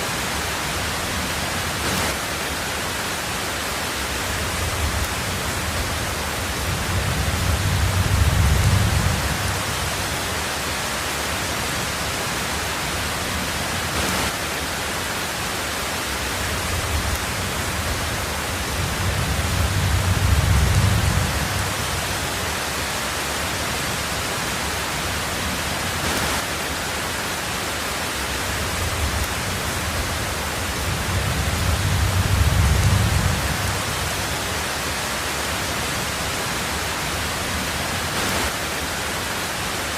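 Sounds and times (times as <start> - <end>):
heavy rain hiss: 0.0 - 39.9
low thunder rumble: 4.3 - 10.2, 16.5 - 22.4, 28.6 - 34.4.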